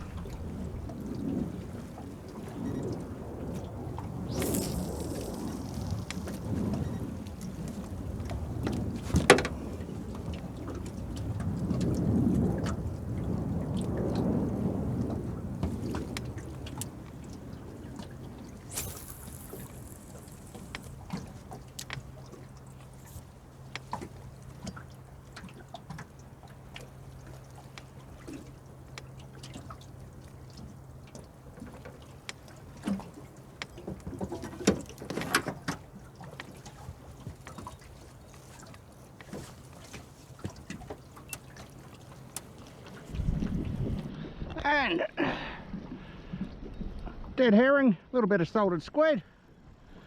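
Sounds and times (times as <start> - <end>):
water trickling: 0.0 - 44.1.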